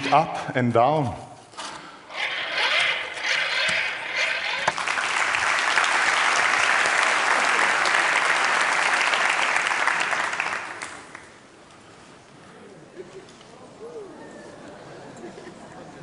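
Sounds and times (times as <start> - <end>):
audience applauding: 4.6 - 11.4.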